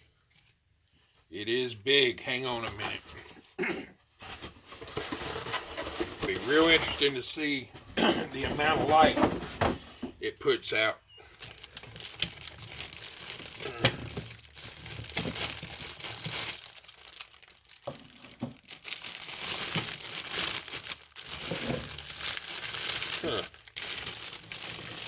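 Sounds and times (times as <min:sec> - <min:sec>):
packaging crumpling and crinkling: 0:04.2 - 0:07.5, 0:08.3 - 0:09.6, 0:11.2 - 0:25.0.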